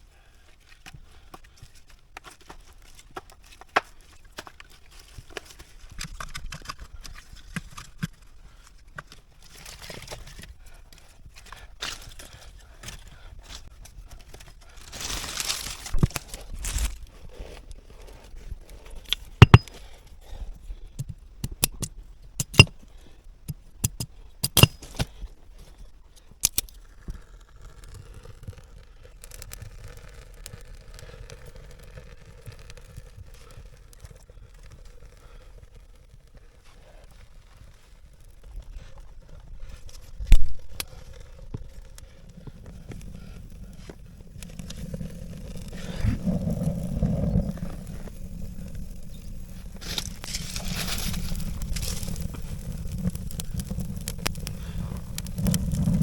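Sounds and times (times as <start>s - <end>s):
rustling and crinkling handling noise: 0.5s - 20.6s, 36.0s - 56.0s
sharp clicks and knocks: 19.1s - 19.7s.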